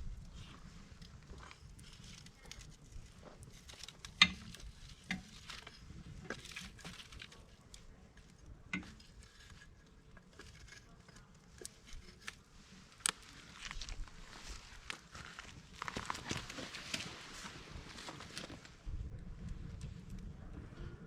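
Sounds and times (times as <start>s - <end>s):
campfire crackling and popping: 0.0s - 16.6s.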